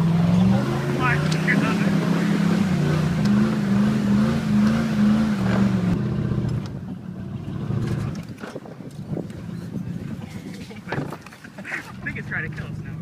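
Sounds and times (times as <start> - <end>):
pickup truck engine revving: 0.0 - 8.2.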